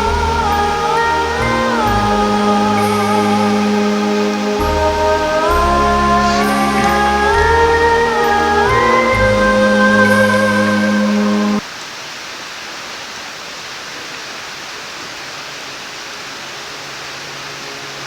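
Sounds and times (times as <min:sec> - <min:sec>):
background music: 0:00.0 - 0:11.6
water rushing: 0:00.0 - 0:18.0.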